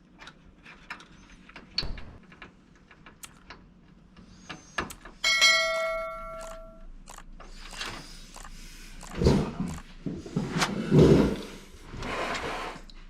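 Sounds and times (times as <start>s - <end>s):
metal object ringing like bell: 5.2s - 6.8s.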